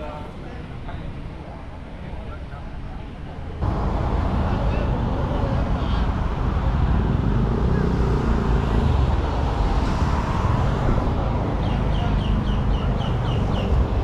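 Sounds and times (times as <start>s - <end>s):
motorcycle engines rumbling: 3.6s - 14.0s.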